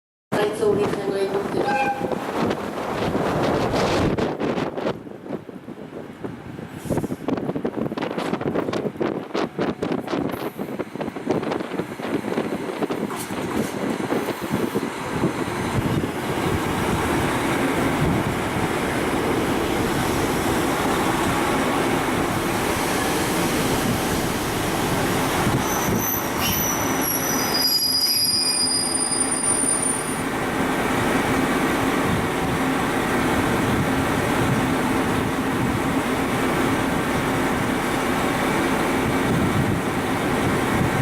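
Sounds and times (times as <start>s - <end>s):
diesel train engines: 0.3s - 41.0s
train wheels on rails: 0.5s - 41.0s
high-pitched wheel squeal: 1.6s - 2.2s, 25.5s - 30.2s.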